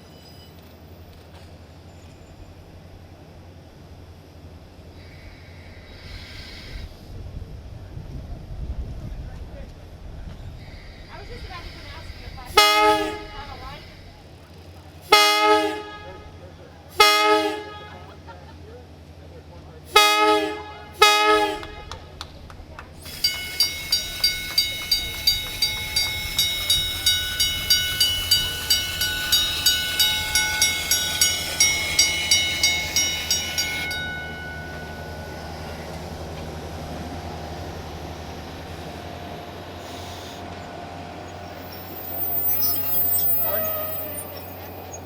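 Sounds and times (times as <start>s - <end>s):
train horn blasts: 12.5s - 14.0s, 15.0s - 18.2s, 19.9s - 22.2s, 23.1s - 36.3s, 41.3s - 45.0s
railroad crossing bell ringing: 23.0s - 38.7s, 41.2s - 45.0s.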